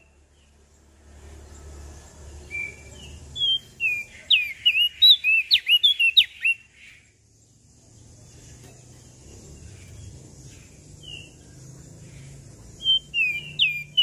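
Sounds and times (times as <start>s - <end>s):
songbird whistling: 2.4s - 7.2s, 12.7s - 14.0s.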